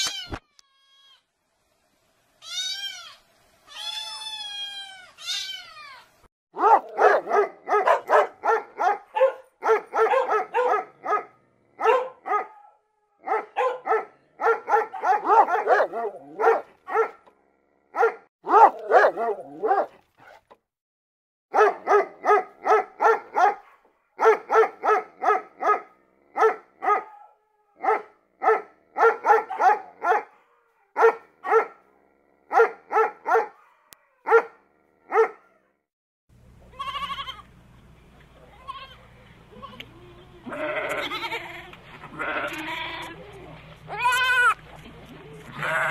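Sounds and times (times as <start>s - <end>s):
kitten meowing: 2.4s - 6.0s
dog barking in short runs: 6.6s - 17.2s, 18.0s - 20.4s, 21.6s - 30.4s, 31.0s - 31.8s, 32.5s - 34.5s, 35.1s - 35.4s.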